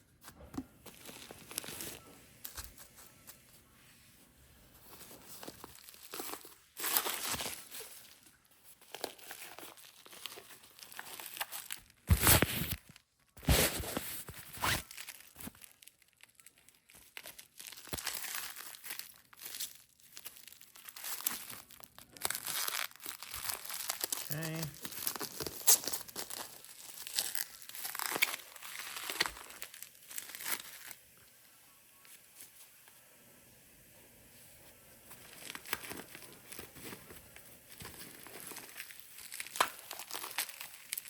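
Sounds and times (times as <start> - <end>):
packaging crinkling and tearing: 0.8 - 3.4, 4.8 - 31.0, 35.1 - 41.0.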